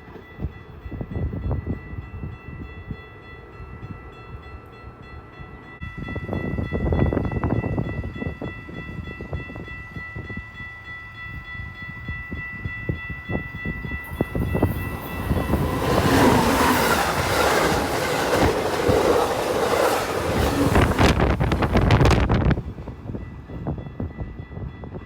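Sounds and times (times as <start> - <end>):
train wheels clicking over rail joints: 14.0 - 22.3.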